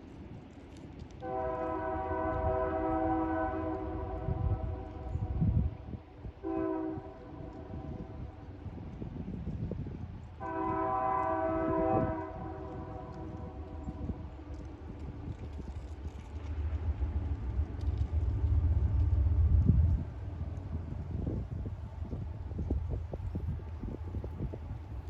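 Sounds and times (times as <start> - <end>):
train rumbling: 0.0 - 25.0
locomotive air horn blast: 1.2 - 5.1, 6.4 - 7.8, 10.4 - 13.8.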